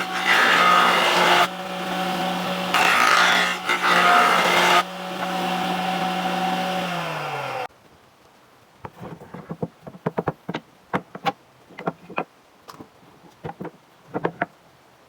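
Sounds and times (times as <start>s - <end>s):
power tool cutting wood: 0.0s - 7.7s
power tool winding down: 0.2s - 7.7s.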